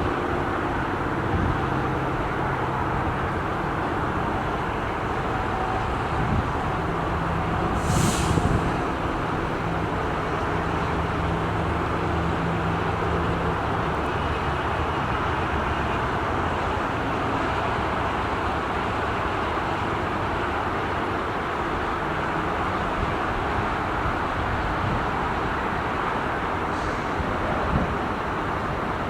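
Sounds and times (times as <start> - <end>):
short high hiss: 7.8 - 8.6.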